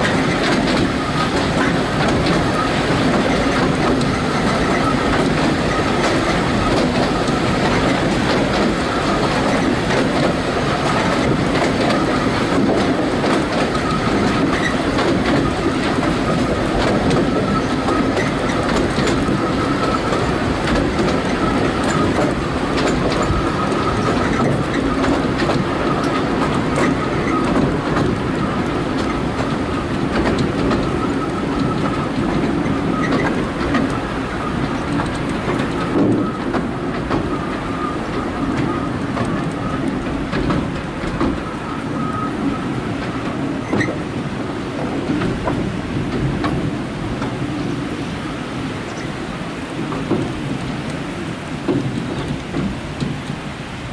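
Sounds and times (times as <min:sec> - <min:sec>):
train wheels rumbling and clattering: 0:00.0 - 0:53.9
faint high wheel squeal: 0:02.4 - 0:07.6, 0:13.7 - 0:20.4, 0:25.8 - 0:27.6, 0:37.3 - 0:40.0, 0:41.4 - 0:44.0.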